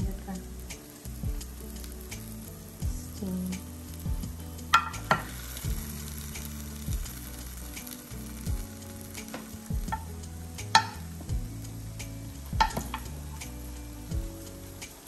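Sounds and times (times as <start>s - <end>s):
vegetables sizzling in a pan: 0.0s - 15.0s
wooden spoon knocking on cookware: 10.7s - 11.0s, 12.6s - 13.0s.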